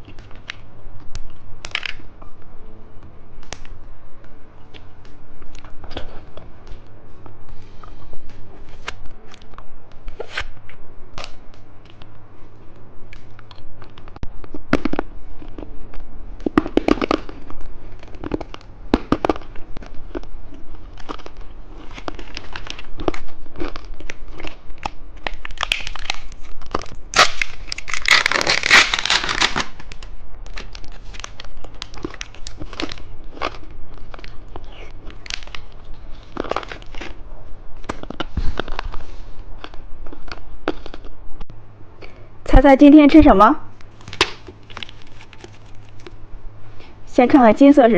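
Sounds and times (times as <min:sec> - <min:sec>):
candy packaging crinkling and tearing: 0:00.0 - 0:02.1, 0:13.1 - 0:41.1, 0:43.9 - 0:46.2.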